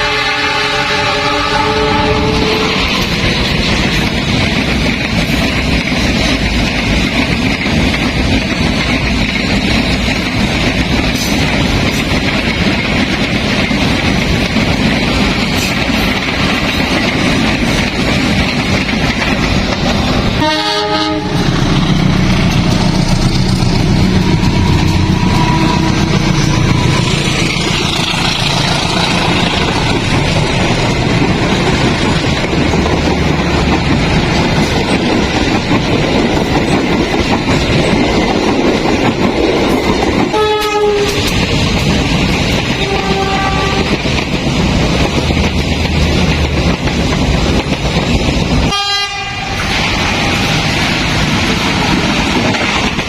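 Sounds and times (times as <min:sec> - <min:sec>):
train horn blasts: 0:00.0 - 0:03.1, 0:20.4 - 0:21.7, 0:40.3 - 0:41.3, 0:42.8 - 0:44.0, 0:48.7 - 0:49.7
train rumble and wheel clatter: 0:00.0 - 0:53.0.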